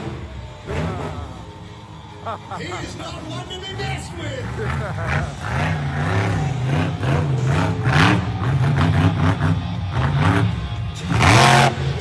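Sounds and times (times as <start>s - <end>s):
music playing: 0.0s - 12.0s
truck engine revving: 0.0s - 12.0s.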